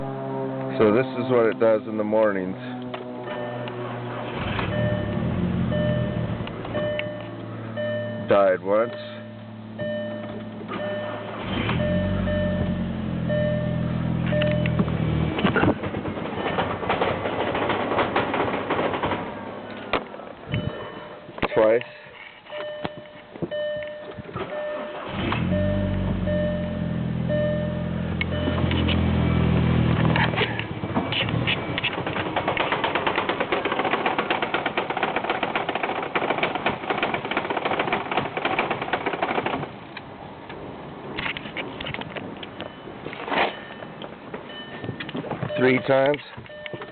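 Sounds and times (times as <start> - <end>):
car engine cranking: 2.8 - 21.6, 22.2 - 46.9
car engine idling roughly: 31.8 - 39.6.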